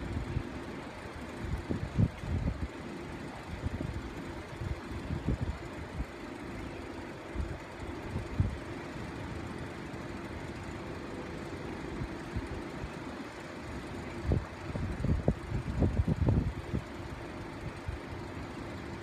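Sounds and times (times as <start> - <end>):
steady low hum: 0.0 - 19.0
wind buffeting microphone: 1.4 - 2.7, 14.2 - 17.0.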